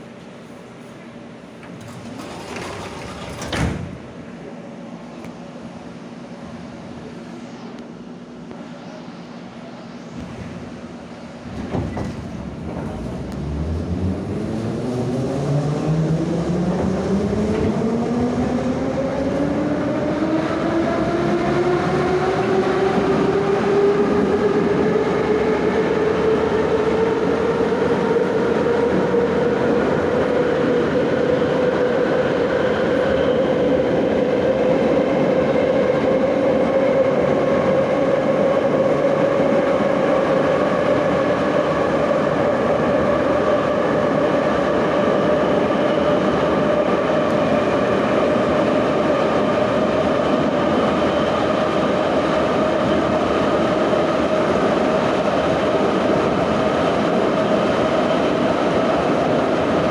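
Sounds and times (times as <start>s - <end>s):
train jolt: 1.5s - 4.5s, 10.2s - 15.8s
wheels rumbling: 1.6s - 4.2s.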